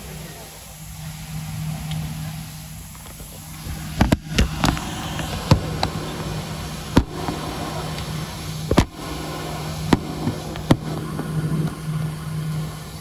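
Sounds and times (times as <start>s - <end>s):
airliner cabin hum: 0.0s - 13.0s.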